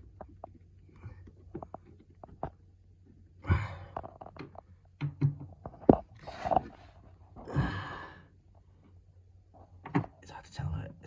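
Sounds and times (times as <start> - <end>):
breathy exhales: 3.4 - 4.0, 7.4 - 8.3.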